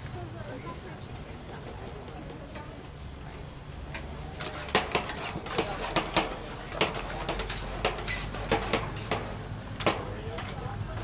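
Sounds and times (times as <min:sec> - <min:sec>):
sharp clacks and knocks: 0:04.4 - 0:10.6.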